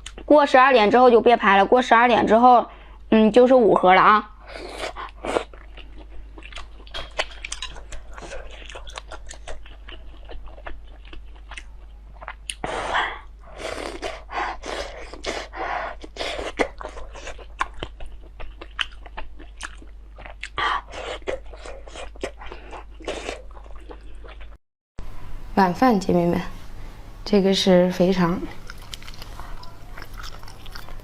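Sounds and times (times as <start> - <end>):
person chewing food: 4.6 - 12.7, 13.3 - 24.6, 28.5 - 31.0.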